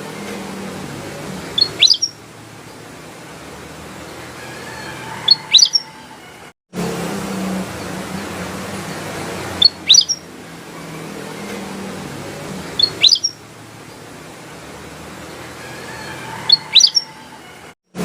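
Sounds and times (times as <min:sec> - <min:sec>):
bird whistled calls: 0:01.5 - 0:02.2, 0:05.1 - 0:06.1, 0:09.6 - 0:10.3, 0:12.8 - 0:13.4, 0:16.3 - 0:17.3.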